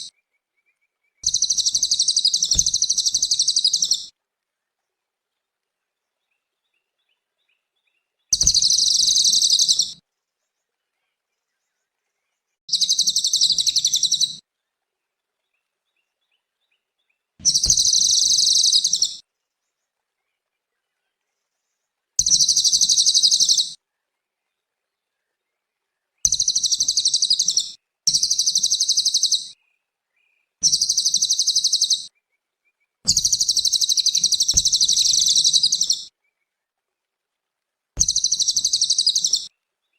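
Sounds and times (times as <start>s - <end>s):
songbird high trill: 1.2s - 4.1s, 8.4s - 10.0s, 12.7s - 14.4s, 17.4s - 19.2s, 22.2s - 23.8s, 26.3s - 29.5s, 30.6s - 32.1s, 33.1s - 36.1s, 38.0s - 39.5s.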